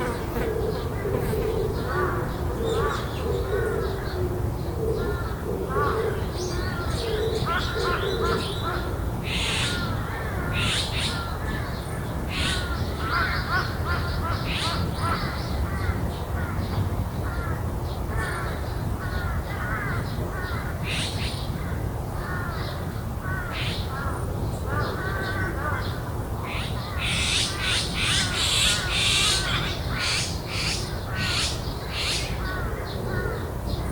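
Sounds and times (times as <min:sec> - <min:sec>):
bird calls: 0:00.0 - 0:33.9
crows cawing: 0:04.9 - 0:33.5.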